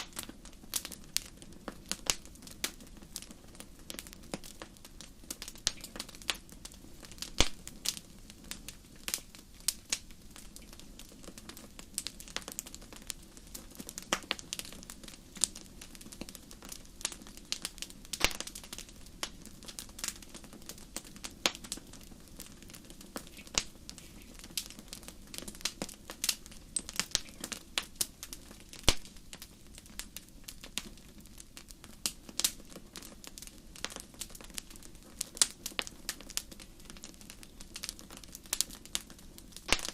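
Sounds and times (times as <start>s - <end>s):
campfire crackling: 0.0s - 39.9s
low rumble of flames: 0.0s - 39.9s.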